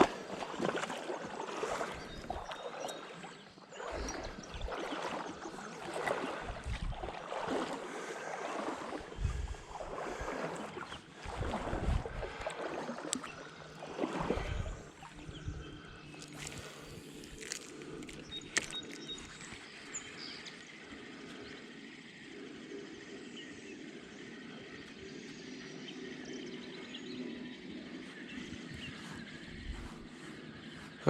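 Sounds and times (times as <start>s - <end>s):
water sloshing and splashing: 0.0s - 22.4s
running stream: 0.0s - 31.0s.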